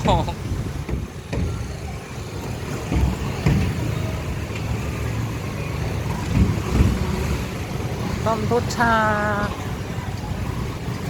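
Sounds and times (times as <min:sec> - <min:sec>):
low engine rumble: 0:00.0 - 0:11.0
outdoor background noise: 0:00.0 - 0:11.0.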